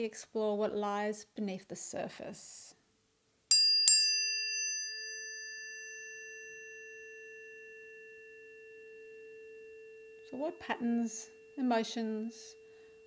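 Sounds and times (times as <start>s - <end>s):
tuning forks ringing: 3.5s - 13.0s.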